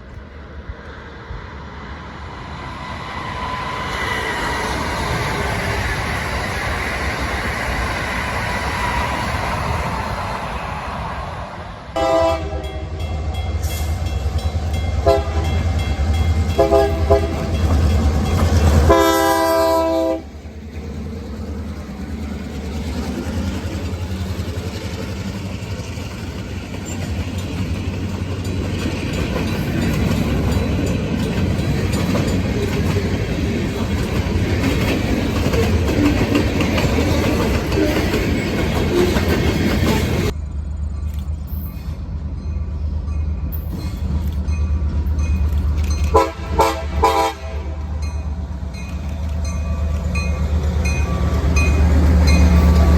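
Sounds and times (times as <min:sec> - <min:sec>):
train horn blasts: 0:12.0 - 0:13.3, 0:15.0 - 0:15.7, 0:16.5 - 0:17.6, 0:18.8 - 0:20.3, 0:46.1 - 0:48.0
train wheels clattering on rails: 0:12.6 - 0:52.9.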